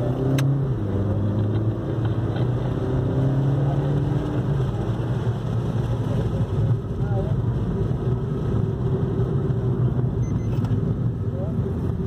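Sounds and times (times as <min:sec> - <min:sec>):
car engine accelerating: 0:00.0 - 0:12.0
road noise: 0:00.0 - 0:12.0.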